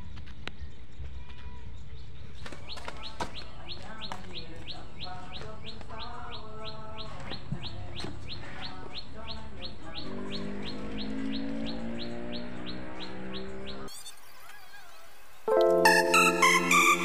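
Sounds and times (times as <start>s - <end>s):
bird chirping: 1.8s - 14.0s.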